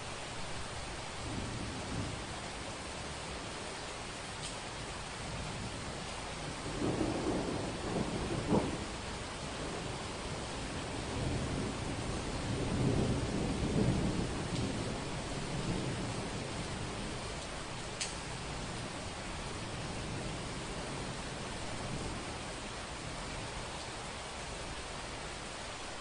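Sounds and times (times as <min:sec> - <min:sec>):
steady rain: 0:00.0 - 0:26.0
thunder rumbling: 0:00.6 - 0:02.8, 0:05.3 - 0:23.5.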